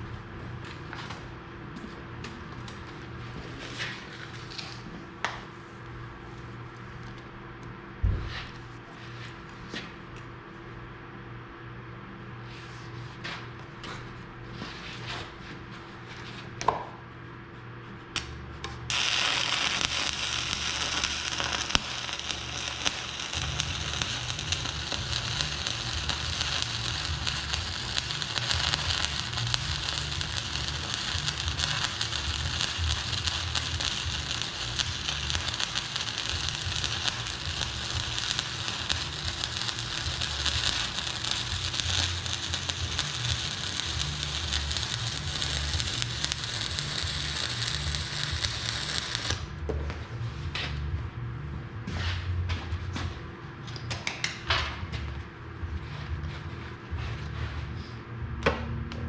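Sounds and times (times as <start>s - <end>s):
welding arc crackling: 18.9s - 49.5s.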